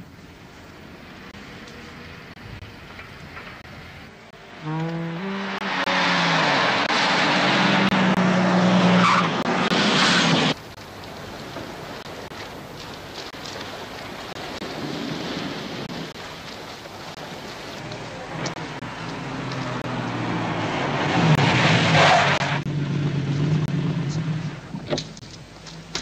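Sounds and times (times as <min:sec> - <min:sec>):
car engine revving: 0:01.1 - 0:10.6, 0:17.8 - 0:25.2.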